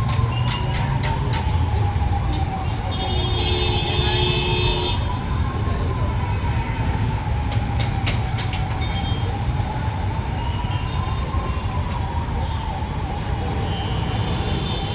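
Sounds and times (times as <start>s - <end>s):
low rumble of traffic: 0.0s - 14.9s
vehicle siren wailing: 0.0s - 14.9s.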